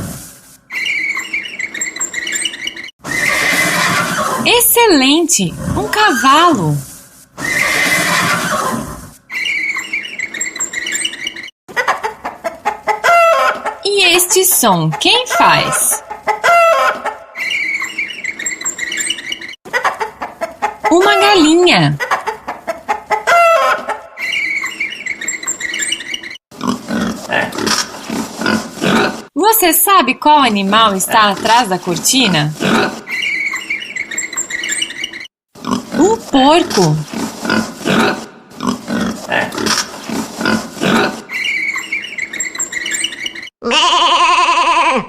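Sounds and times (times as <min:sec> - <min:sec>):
pig grunting and oinking: 0:05.5 - 0:06.1, 0:26.6 - 0:29.3, 0:32.5 - 0:33.1, 0:35.6 - 0:41.6
chickens clucking: 0:09.4 - 0:13.9, 0:14.6 - 0:26.0
chicken rising call: 0:12.9 - 0:13.8, 0:16.3 - 0:18.4, 0:23.0 - 0:25.2.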